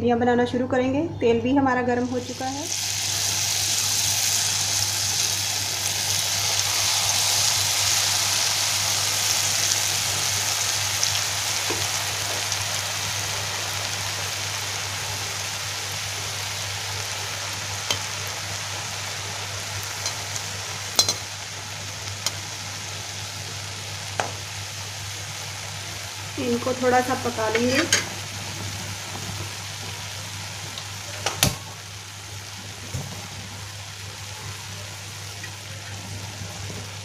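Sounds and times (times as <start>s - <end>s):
batter sizzling in hot oil: 2.0s - 37.0s.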